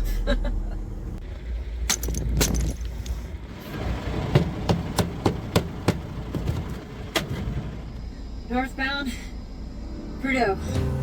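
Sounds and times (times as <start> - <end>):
truck engine idling: 0.0 - 8.4
metal tire chains clanking: 1.8 - 3.3.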